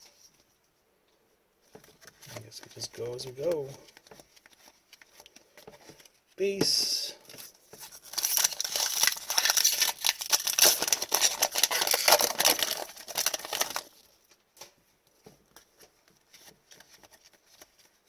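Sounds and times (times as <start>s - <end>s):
foil wrapper crinkling and tearing: 7.2s - 14.4s.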